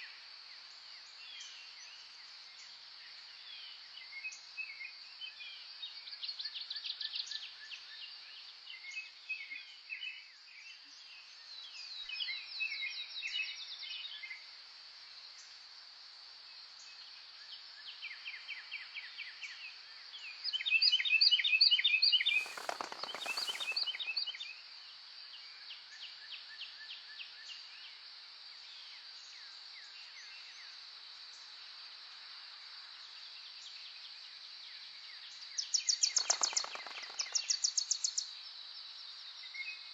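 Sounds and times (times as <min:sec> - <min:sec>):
songbirds trilling and chirping: 0:22.0 - 0:24.4, 0:35.8 - 0:37.8.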